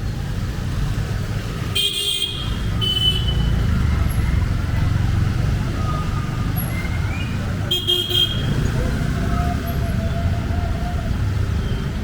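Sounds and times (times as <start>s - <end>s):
street traffic: 0.0s - 12.0s
vehicle engine rumbling: 0.0s - 12.0s
car horn toot: 1.8s - 3.4s.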